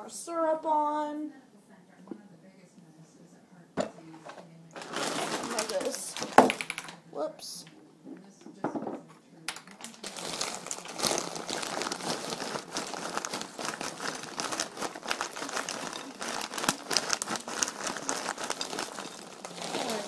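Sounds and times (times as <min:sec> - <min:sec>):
packaging crinkling: 0:04.8 - 0:06.9, 0:09.5 - 0:20.0.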